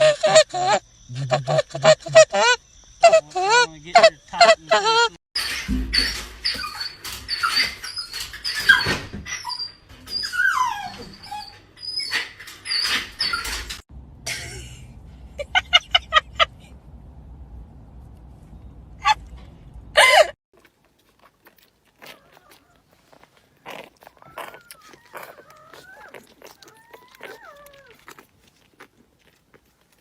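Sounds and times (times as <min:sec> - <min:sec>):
high-pitched animal yips: 0:22.0 - 0:28.3.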